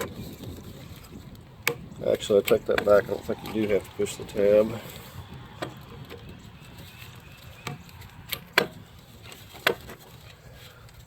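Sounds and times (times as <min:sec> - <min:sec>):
plastic clicks and knocks: 0:01.6 - 0:03.0.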